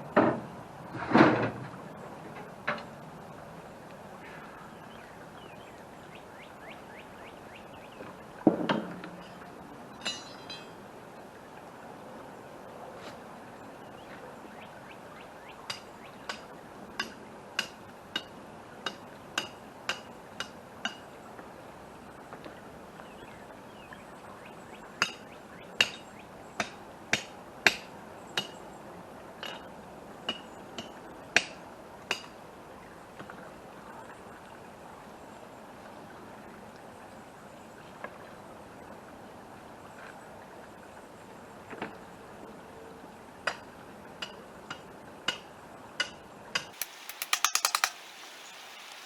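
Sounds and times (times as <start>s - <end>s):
hammer striking metal: 10.0s - 10.7s, 46.8s - 48.8s.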